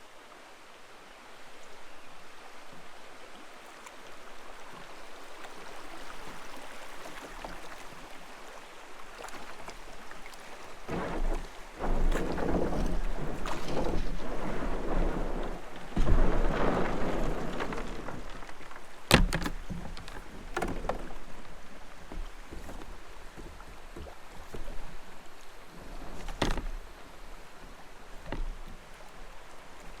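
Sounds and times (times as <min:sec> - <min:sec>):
water splashing around a kayak: 0:00.0 - 0:30.0
knocks against kayak hull: 0:10.9 - 0:24.9, 0:26.0 - 0:26.9, 0:28.2 - 0:28.8.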